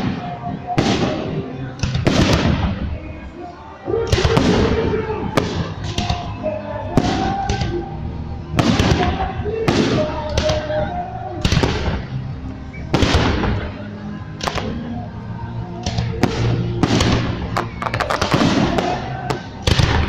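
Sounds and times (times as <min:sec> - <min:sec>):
fireworks booming and cracking: 0:00.0 - 0:02.9, 0:04.1 - 0:06.4, 0:08.6 - 0:10.7, 0:11.4 - 0:12.1, 0:12.9 - 0:13.8, 0:14.4 - 0:14.8, 0:15.8 - 0:20.0
crackling firework bursts: 0:15.8 - 0:20.0.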